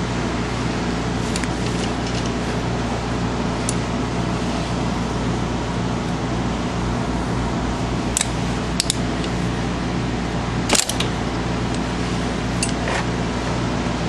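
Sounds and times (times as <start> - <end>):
steady mechanical hum: 0.0 - 14.0
ratchet clicking: 8.1 - 9.4.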